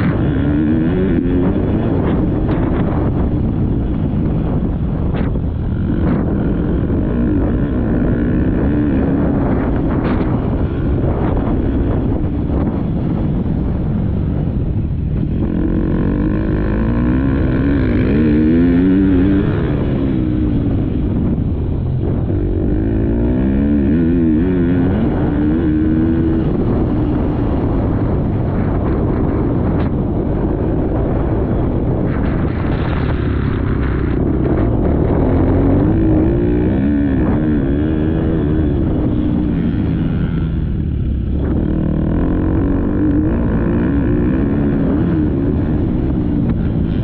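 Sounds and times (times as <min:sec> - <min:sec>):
motocross bike engine revving: 0:00.0 - 0:13.3, 0:15.2 - 0:47.0.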